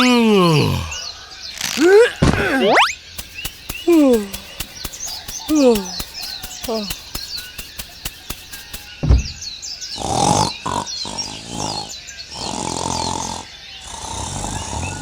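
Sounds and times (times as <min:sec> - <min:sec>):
small birds chirping: 0:00.0 - 0:10.1
ticking: 0:01.5 - 0:08.9
thump: 0:09.0 - 0:09.4.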